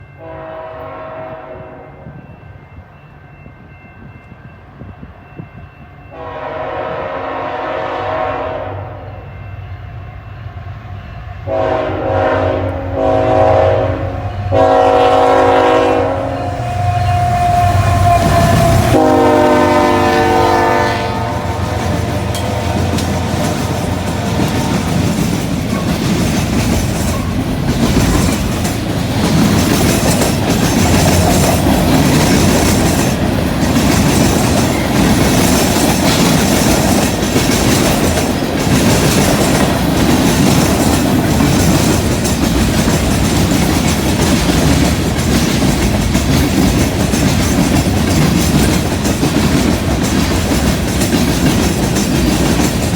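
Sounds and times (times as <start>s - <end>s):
locomotive horn chord: 0.2s - 2.1s, 6.1s - 9.4s, 11.4s - 25.2s
locomotive engines rumbling: 6.1s - 52.9s
wheels clacking over rail joints: 16.6s - 52.9s.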